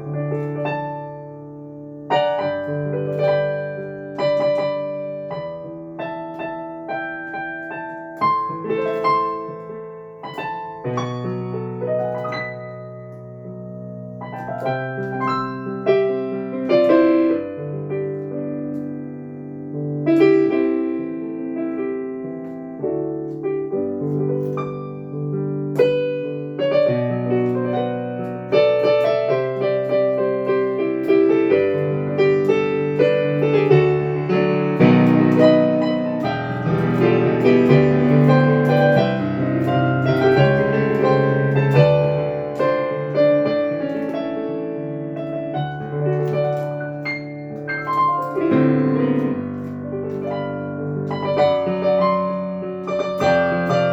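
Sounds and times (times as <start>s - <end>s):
solo piano playing: 0.0s - 53.9s.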